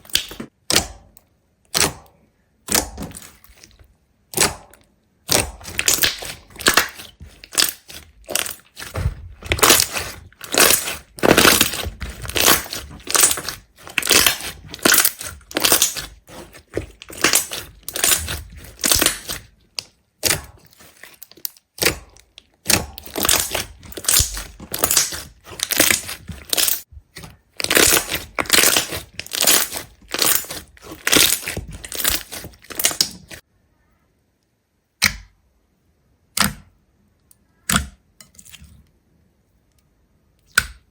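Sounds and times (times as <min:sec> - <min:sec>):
brittle crunching and crackling: 0:00.0 - 0:01.0, 0:02.7 - 0:33.4.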